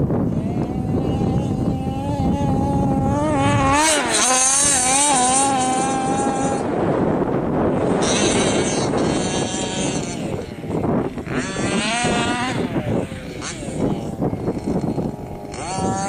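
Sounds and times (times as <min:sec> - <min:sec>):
off-road car engine revving: 0:00.1 - 0:16.0.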